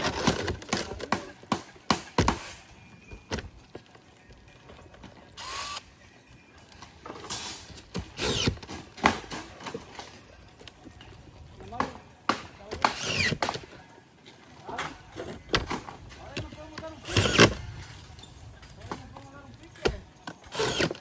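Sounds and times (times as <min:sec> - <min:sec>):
knocks and clicks on metal shingles: 0:00.0 - 0:03.9
power drill running: 0:05.4 - 0:05.9, 0:08.0 - 0:08.7, 0:12.9 - 0:13.4, 0:17.0 - 0:17.7, 0:20.4 - 0:21.0.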